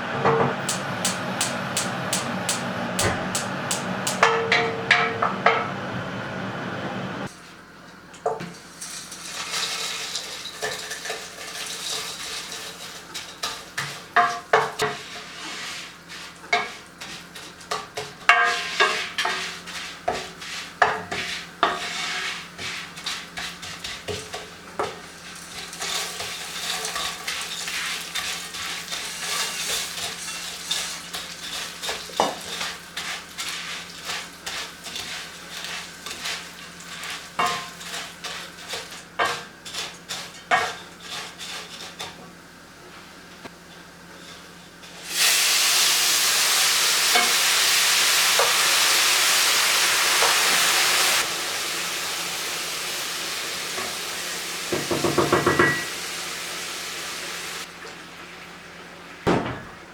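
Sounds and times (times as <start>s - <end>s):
utensil knocking against pan: 0.2s - 5.6s, 54.7s - 55.9s
food sizzling in a frying pan: 0.5s - 7.4s, 8.2s - 59.3s.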